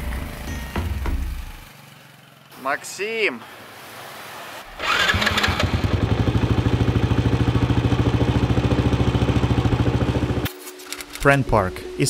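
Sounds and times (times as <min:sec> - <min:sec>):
motorbike engine idling: 0:04.8 - 0:10.5.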